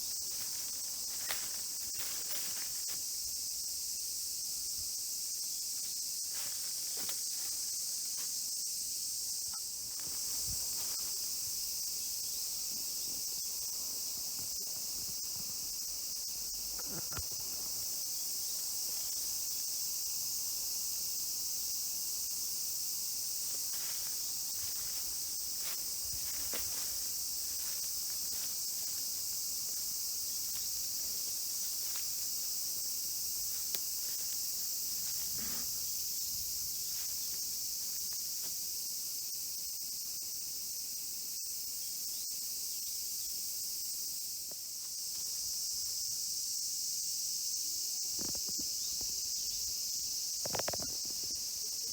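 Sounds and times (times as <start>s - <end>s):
faint ticks and rustles: 0.0s - 3.3s, 5.6s - 8.6s, 23.4s - 38.8s, 47.5s - 51.9s
high-pitched insect chorus: 0.0s - 51.9s.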